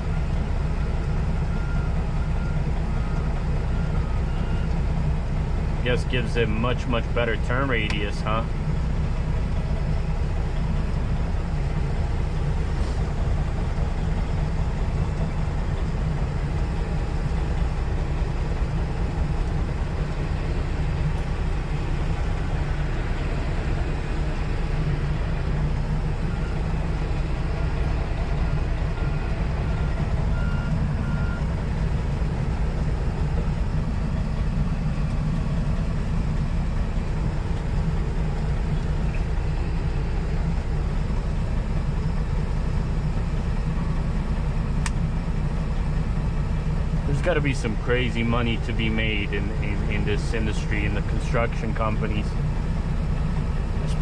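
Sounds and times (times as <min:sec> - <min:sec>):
diesel truck engine running: 0:00.0 - 0:54.0
backup alarm beeps: 0:29.0 - 0:31.6.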